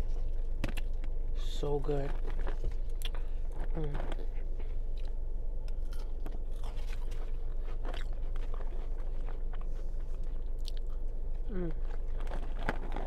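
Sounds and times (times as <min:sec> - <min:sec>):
low hum: 0:00.0 - 0:13.0
person chewing crunchy food: 0:00.0 - 0:13.0
person humming mm: 0:11.4 - 0:11.8.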